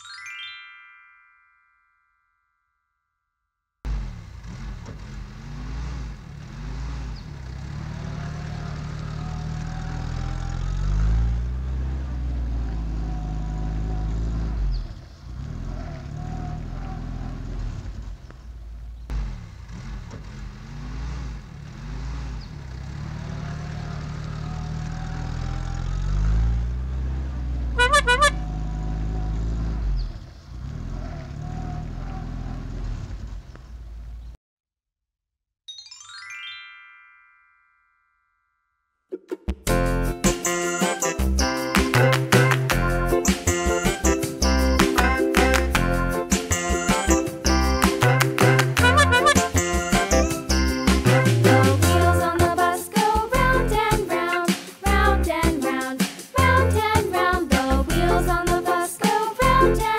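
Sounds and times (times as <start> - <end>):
toy car engine revving: 3.9 - 18.0, 19.1 - 33.6, 46.5 - 52.4
horn beeps: 27.8 - 28.8, 48.4 - 50.3.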